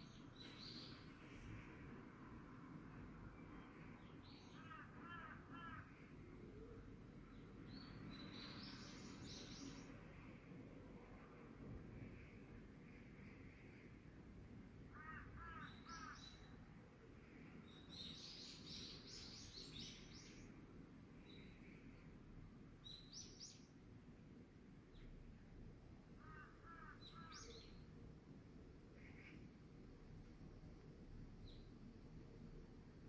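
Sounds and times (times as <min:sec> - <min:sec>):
low outdoor background hum: 0:00.0 - 0:33.0
crows cawing: 0:04.5 - 0:06.0, 0:14.9 - 0:16.3, 0:26.2 - 0:27.4.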